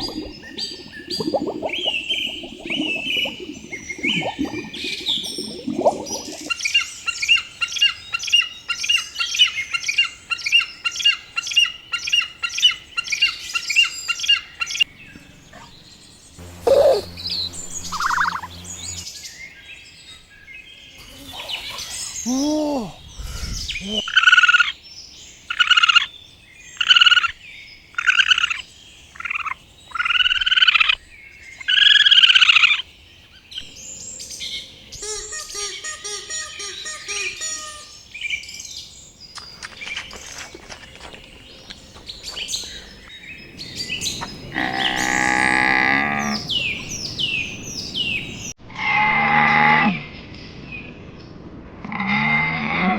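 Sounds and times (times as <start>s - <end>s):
high bird chirps: 0.0s - 7.0s, 16.4s - 19.1s
loud arched bird calls: 42.0s - 48.5s.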